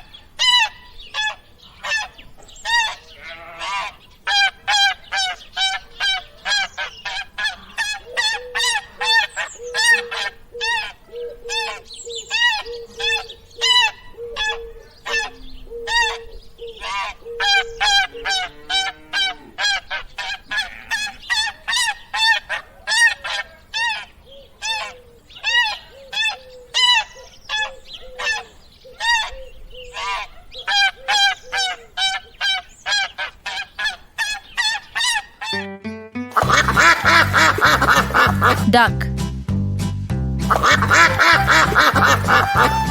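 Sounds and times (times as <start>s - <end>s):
geese honking: 0.0s - 12.6s, 13.6s - 29.4s, 30.0s - 35.7s, 36.4s - 38.8s, 40.4s - 42.9s.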